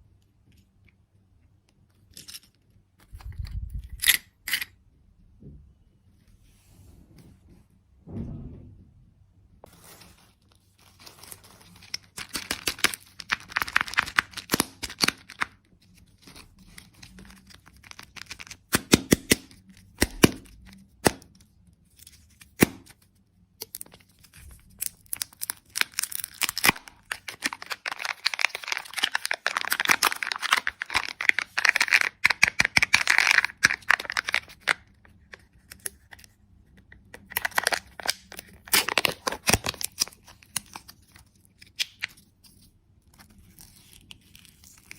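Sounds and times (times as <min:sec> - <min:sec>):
candy wrapper tearing and crinkling: 0:02.0 - 0:04.6, 0:10.8 - 0:21.3, 0:23.6 - 0:36.4, 0:37.2 - 0:44.9.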